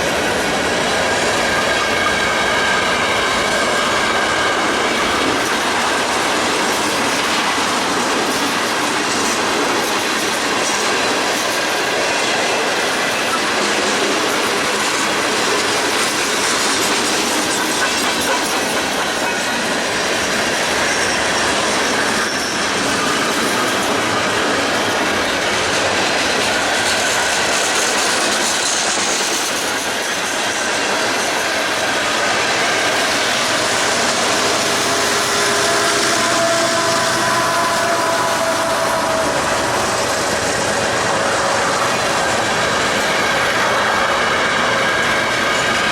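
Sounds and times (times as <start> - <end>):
train wheels rolling on track: 0.0 - 45.9
wheels squealing: 32.0 - 45.9.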